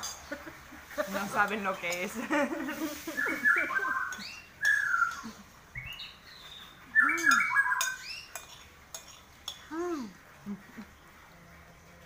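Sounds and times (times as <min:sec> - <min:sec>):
spoons clicking on plates: 0:00.0 - 0:00.4, 0:03.9 - 0:05.4, 0:07.1 - 0:09.7
bird chirping: 0:03.1 - 0:08.5.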